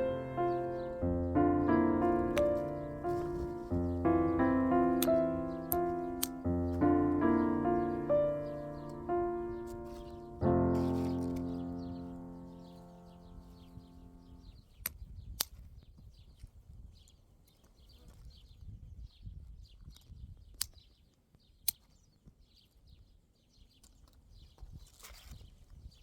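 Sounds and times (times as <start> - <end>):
piano music: 0.0 - 14.5
small birds chirping: 0.0 - 26.0
sharp clicks: 2.2 - 12.1.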